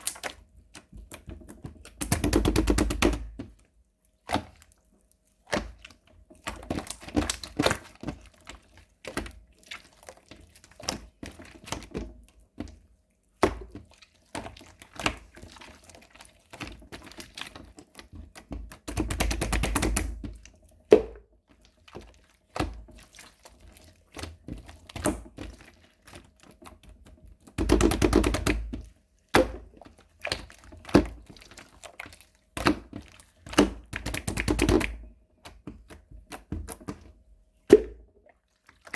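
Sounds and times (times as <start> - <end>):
rapid slime popping: 0.0 - 3.6, 5.5 - 8.2, 16.7 - 21.2, 27.5 - 36.9.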